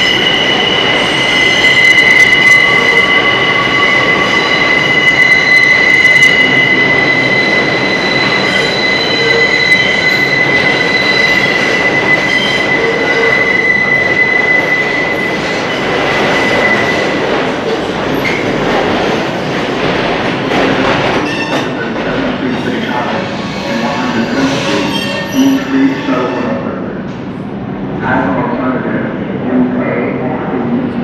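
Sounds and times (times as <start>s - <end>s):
train wheel squeal: 0.0s - 17.2s, 21.2s - 21.8s, 22.5s - 26.7s
train wheels rumbling on rail: 0.0s - 31.0s.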